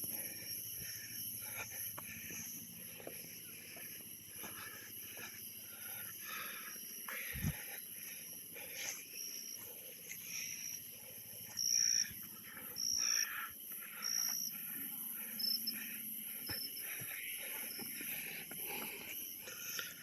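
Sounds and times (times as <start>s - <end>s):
insects high-pitched drone: 0.0s - 20.0s
insects short high chirps: 8.8s - 14.5s.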